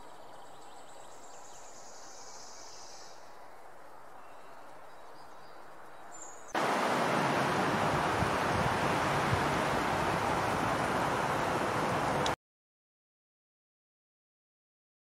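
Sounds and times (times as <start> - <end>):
loud steady rushing noise: 6.6 - 12.4.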